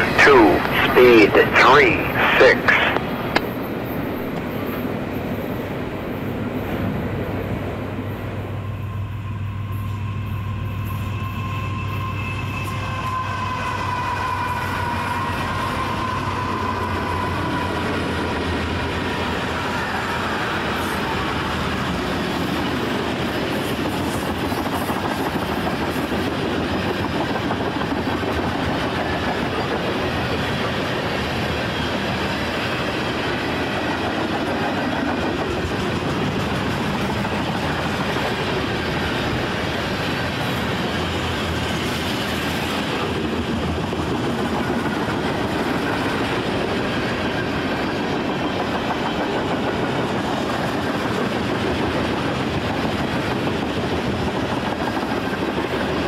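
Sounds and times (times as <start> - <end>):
diesel locomotive engine drone: 0.0 - 56.0
rail cars rumbling and rattling: 2.9 - 56.0.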